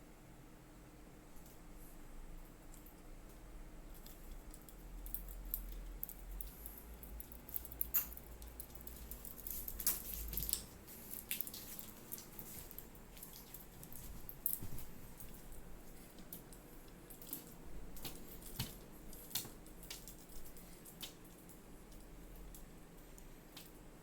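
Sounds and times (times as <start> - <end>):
small clicks: 2.7 - 14.6
light rustling: 7.5 - 21.2.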